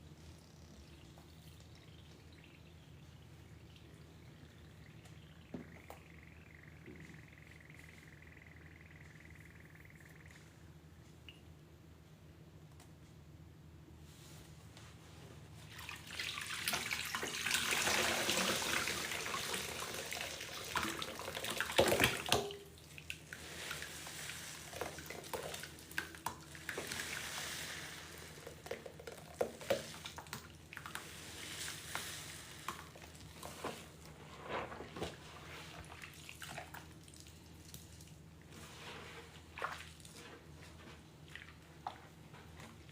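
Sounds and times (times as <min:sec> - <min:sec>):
water splashes and drips: 0:15.7 - 0:33.9, 0:35.7 - 0:38.4, 0:39.4 - 0:40.3
tap water running onto sponge: 0:16.4 - 0:33.6.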